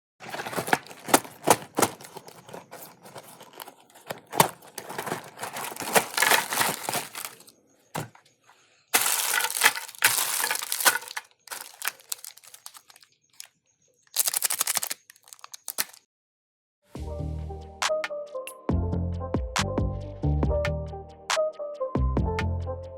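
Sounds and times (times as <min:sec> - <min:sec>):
grinder crushing candy: 0:00.0 - 0:08.1, 0:09.0 - 0:13.0, 0:14.1 - 0:16.0.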